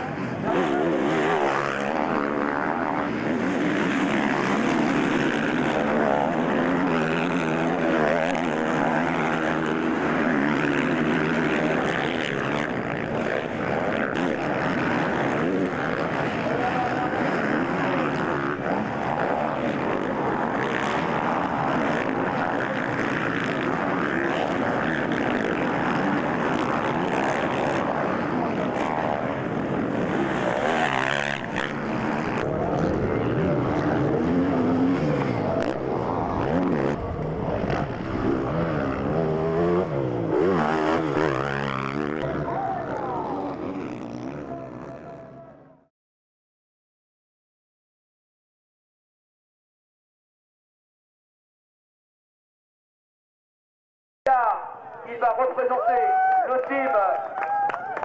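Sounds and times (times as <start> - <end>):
motocross bike engines revving: 0.0 - 45.9.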